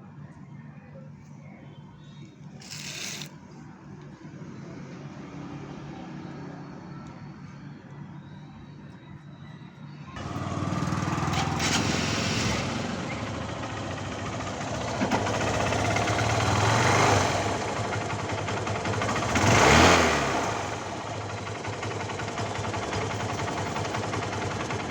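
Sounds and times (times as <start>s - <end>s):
motorcycle engine revving: 10.2s - 24.9s.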